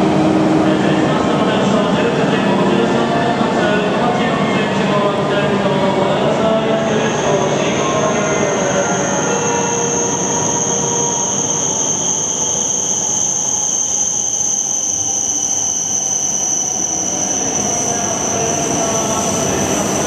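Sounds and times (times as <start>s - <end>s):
train running noise: 0.0s - 20.0s
high-pitched whine: 0.1s - 20.0s.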